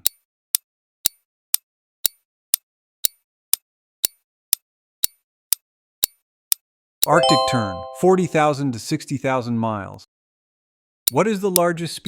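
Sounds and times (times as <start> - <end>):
countdown timer ticking: 7.0 - 8.7.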